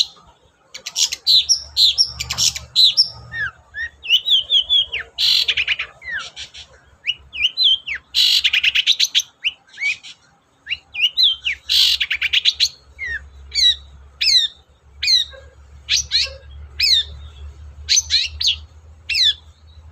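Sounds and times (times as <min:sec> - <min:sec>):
shrike song with rattles and whistles: 0:00.0 - 0:19.9.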